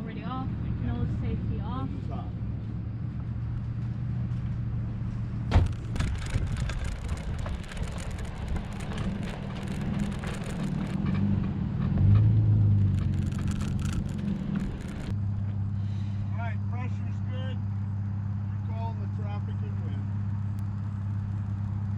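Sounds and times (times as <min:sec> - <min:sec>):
truck engine idling: 0:00.0 - 0:21.9
rustling on microphone: 0:05.6 - 0:11.0, 0:12.8 - 0:15.1.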